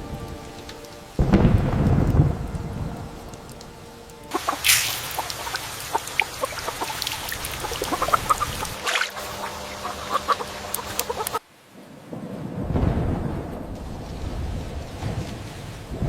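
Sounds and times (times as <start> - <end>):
rain pattering: 0.0 - 16.0
short bird calls: 4.6 - 5.4.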